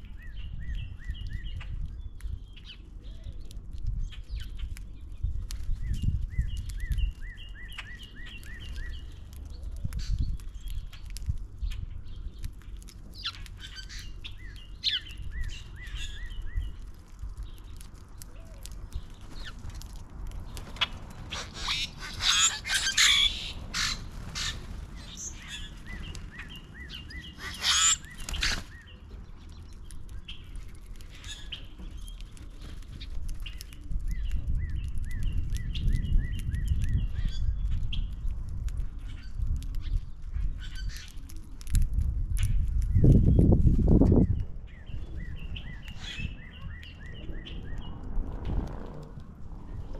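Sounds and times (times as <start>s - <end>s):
low background rumble: 0.0s - 49.9s
harsh noisy bird calls: 20.7s - 29.0s.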